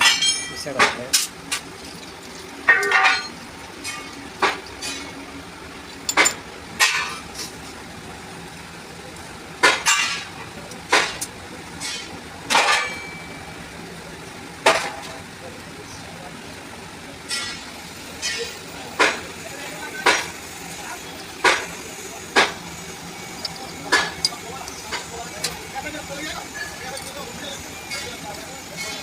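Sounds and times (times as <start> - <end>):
metal tools clinking: 0.0 - 1.0, 1.7 - 5.1, 5.9 - 7.3, 20.9 - 29.0
sharp ringing metal strikes: 0.0 - 1.0, 11.8 - 13.5.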